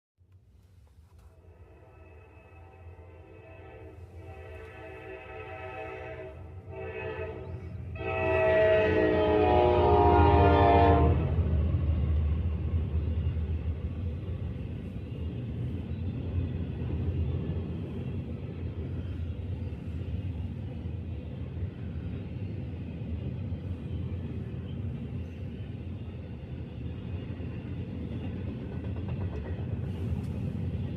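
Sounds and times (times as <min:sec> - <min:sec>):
train rumbling past: 0:00.4 - 0:30.9
locomotive horn chord: 0:01.4 - 0:11.4.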